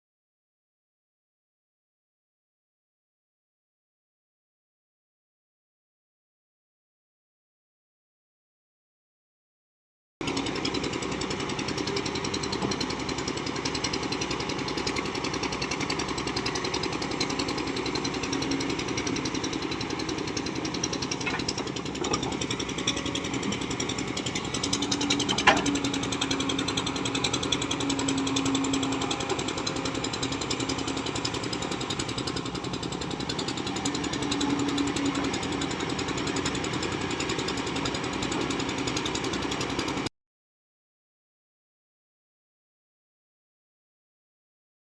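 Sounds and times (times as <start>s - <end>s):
diesel engine running: 10.2s - 40.1s.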